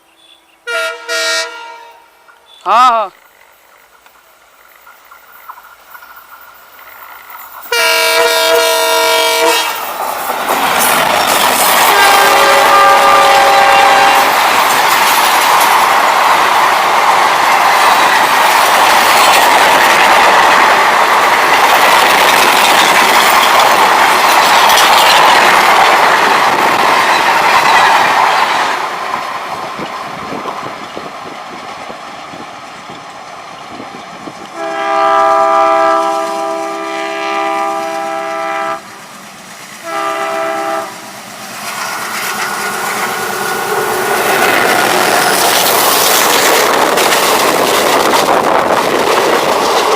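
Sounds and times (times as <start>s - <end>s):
diesel locomotive horn blasts: 0.2s - 2.7s, 7.7s - 9.9s, 11.8s - 14.4s, 34.5s - 38.9s, 39.8s - 41.2s
train wheels rushing past: 3.2s - 49.9s.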